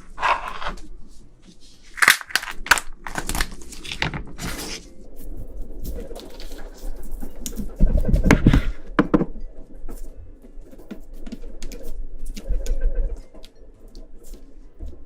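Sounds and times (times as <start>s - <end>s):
shrimp shell cracking and snapping: 2.0s - 3.9s.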